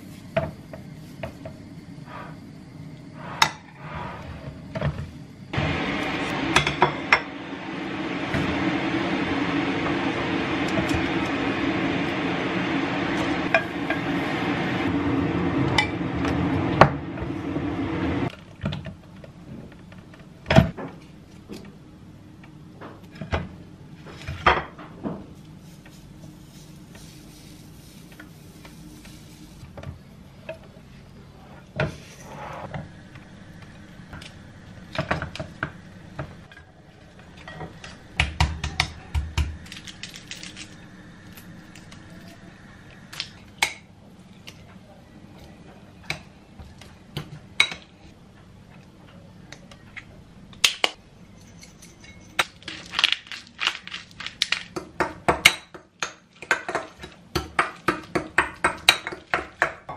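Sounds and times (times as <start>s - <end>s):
steady rushing noise: 5.5s - 18.3s
dishes and cutlery clinking: 51.3s - 52.9s.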